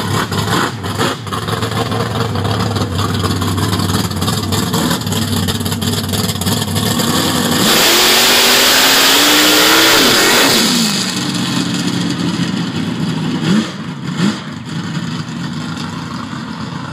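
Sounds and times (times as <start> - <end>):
drag car engine revving: 0.0 - 16.9.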